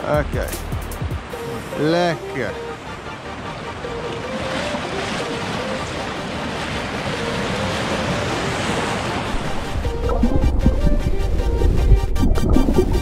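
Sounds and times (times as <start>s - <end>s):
waves breaking on beach: 1.2s - 11.6s.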